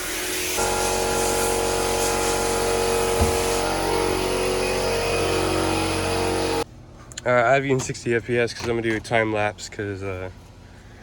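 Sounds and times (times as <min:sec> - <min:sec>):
vehicle engine running: 0:00.6 - 0:06.6
short thump: 0:03.2 - 0:03.6.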